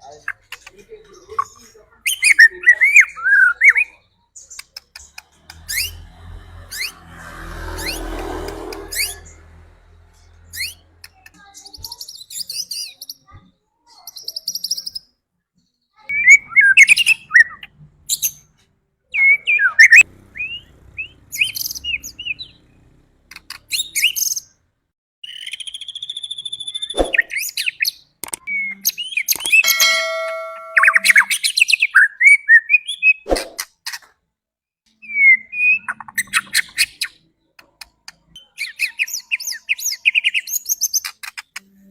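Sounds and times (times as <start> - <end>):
bird singing whistles and trills: 25.2 - 31.3, 35.0 - 36.6.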